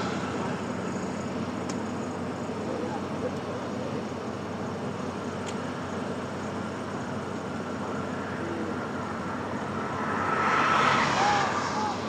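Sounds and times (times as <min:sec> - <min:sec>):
engine and road noise: 0:00.0 - 0:12.0.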